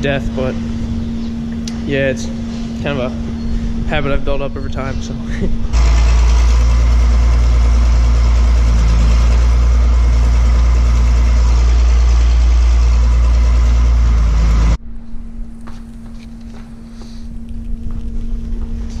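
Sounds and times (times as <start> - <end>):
farm machine engine rumbling: 0.0 - 19.0
faint steady hum: 14.8 - 19.0.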